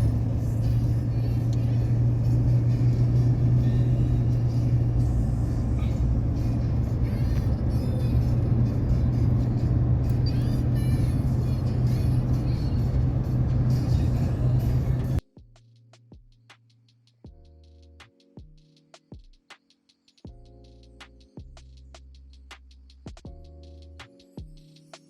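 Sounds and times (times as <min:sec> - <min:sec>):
engine droning: 0:00.0 - 0:15.2.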